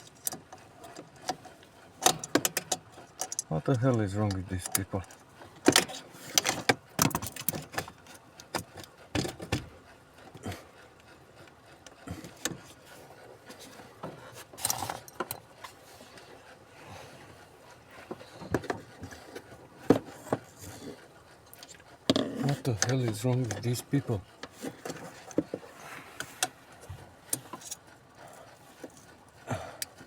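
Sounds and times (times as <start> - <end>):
hand tools clicking and knocking: 0.0 - 9.7, 21.6 - 25.6
metallic rattles of hand tools: 0.0 - 9.7, 14.5 - 15.7, 18.3 - 25.6, 26.2 - 30.0.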